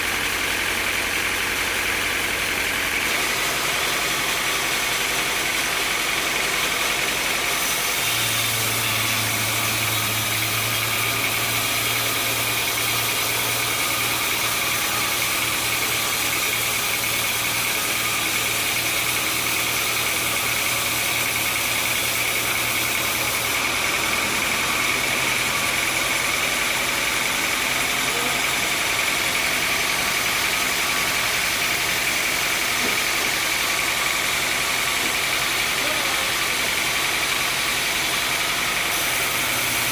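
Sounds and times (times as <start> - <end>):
high-pitched machinery whine: 3.1 - 39.9.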